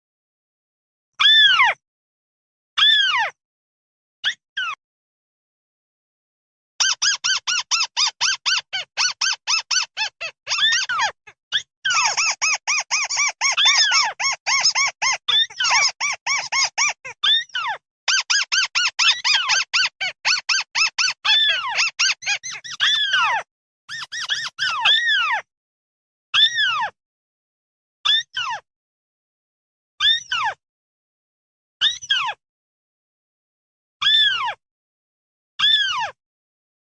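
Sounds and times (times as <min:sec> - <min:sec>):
bird flock chirping: 0:20.6 - 0:23.3, 0:23.9 - 0:24.8.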